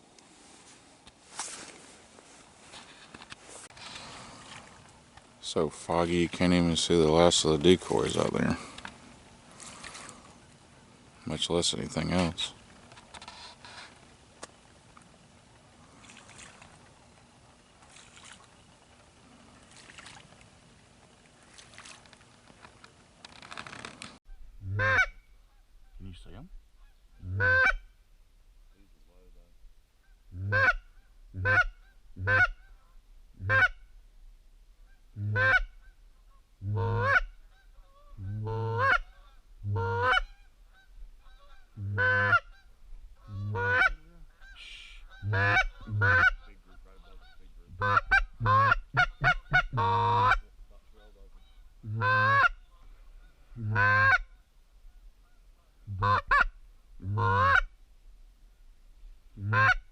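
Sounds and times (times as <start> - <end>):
geese honking: 24.3 - 27.9, 30.0 - 33.9, 34.8 - 57.7, 59.4 - 59.9.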